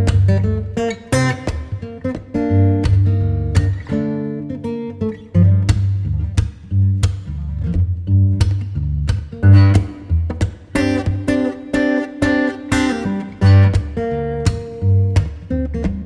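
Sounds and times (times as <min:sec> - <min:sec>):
acoustic guitar chords: 0:00.0 - 0:16.0
bass line: 0:02.4 - 0:04.0, 0:05.3 - 0:11.5, 0:13.0 - 0:16.0.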